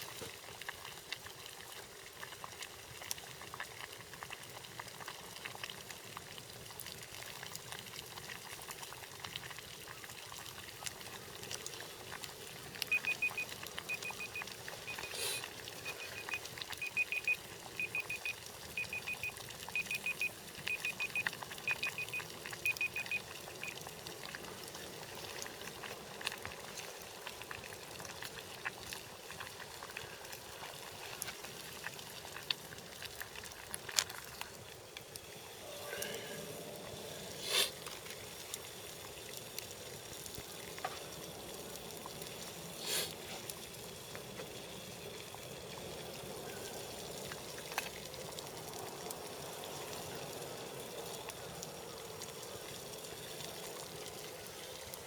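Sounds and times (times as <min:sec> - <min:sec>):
water boiling in a pot: 0:00.0 - 0:55.0.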